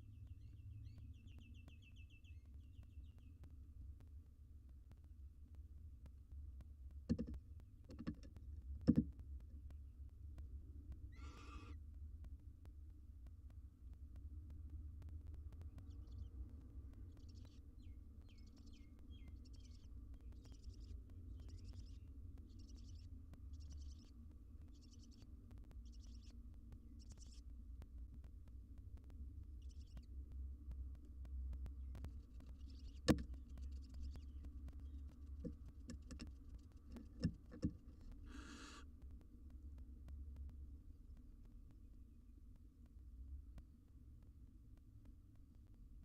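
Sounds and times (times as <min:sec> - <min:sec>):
low electrical hum: 0:00.0 - 0:46.0
owls tapping and scratching: 0:07.1 - 0:09.3, 0:31.5 - 0:38.8
buzzy bird chirps: 0:11.1 - 0:11.8, 0:38.3 - 0:38.8
owl hiss: 0:11.1 - 0:11.8, 0:38.2 - 0:38.9.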